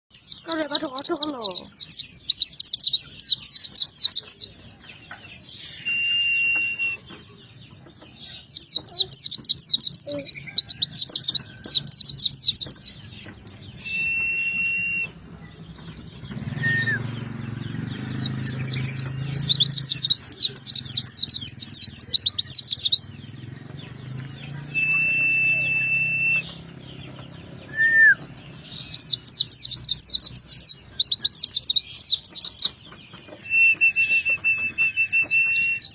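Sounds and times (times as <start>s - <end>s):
songbird chirping: 0.1s - 35.9s
bird long whistled note: 24.8s - 26.5s.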